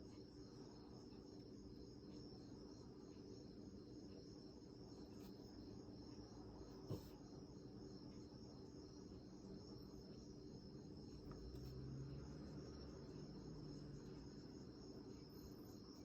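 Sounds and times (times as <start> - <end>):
faint high-pitched whine: 0.0 - 16.0
small tap: 6.9 - 7.1.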